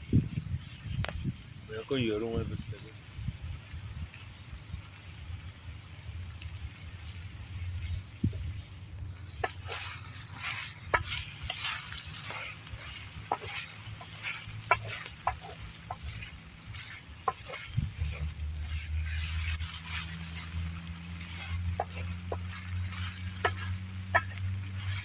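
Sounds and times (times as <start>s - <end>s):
food sizzling in a pan: 0.0s - 25.0s
low rumble: 6.0s - 25.0s
utensil clicking and scraping: 7.0s - 25.0s.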